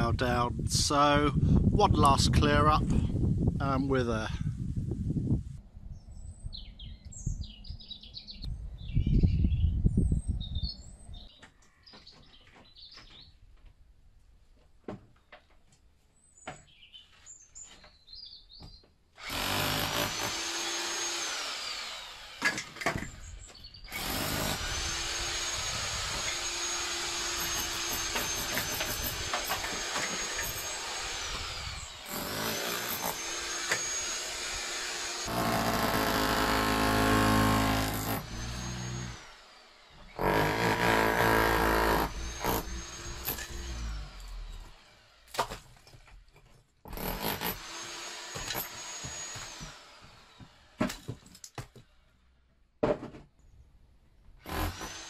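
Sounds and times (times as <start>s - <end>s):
birds chirping: 5.9s - 13.5s, 23.1s - 24.0s
power saw cutting wood: 19.2s - 45.9s, 46.9s - 51.2s, 54.4s - 55.0s.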